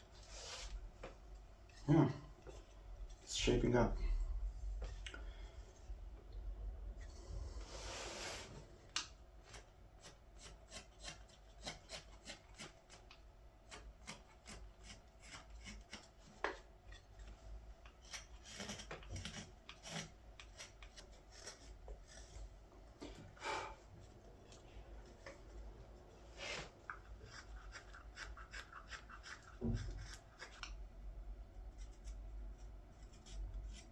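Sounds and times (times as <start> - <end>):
blade scraping shavings from wood: 18.0 - 22.3.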